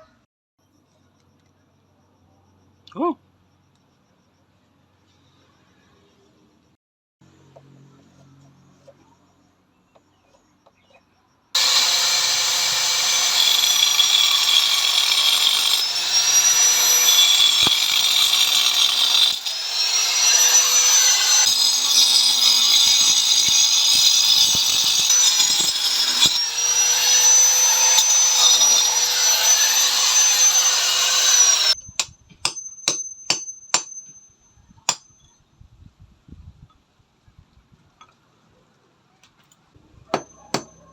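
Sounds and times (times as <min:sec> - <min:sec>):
power tool whining under load: 0:11.6 - 0:31.8.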